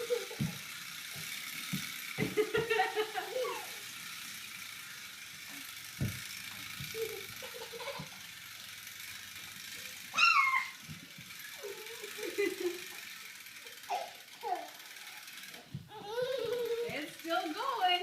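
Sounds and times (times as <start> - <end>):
child giggling: 0.0 - 0.5, 2.2 - 3.8, 7.0 - 8.1, 11.6 - 12.9
toy spring motor whirring: 0.0 - 18.0
child squealing: 10.1 - 10.8, 13.9 - 14.7.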